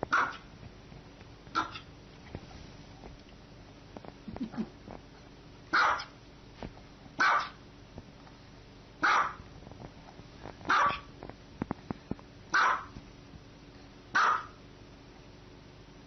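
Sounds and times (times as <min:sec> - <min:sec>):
dog barking: 0:00.1 - 0:00.4, 0:01.5 - 0:01.9, 0:05.7 - 0:06.2, 0:07.2 - 0:07.6, 0:09.0 - 0:09.4, 0:10.7 - 0:11.1, 0:12.5 - 0:13.0, 0:14.1 - 0:14.6.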